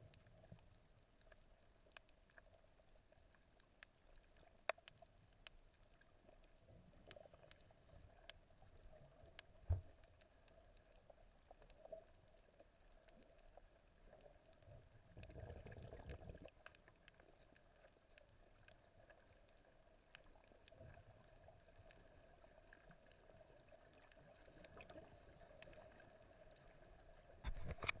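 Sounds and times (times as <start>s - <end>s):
low rumble of water movement: 0.0s - 28.0s
small underwater clicks and crackles: 0.0s - 28.0s.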